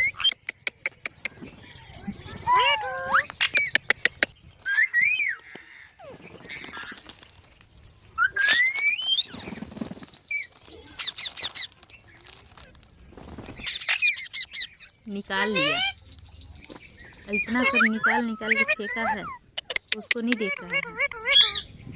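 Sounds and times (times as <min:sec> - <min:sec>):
parrot squawks and chirps: 0:10.3 - 0:11.8, 0:13.6 - 0:16.0, 0:17.2 - 0:21.8.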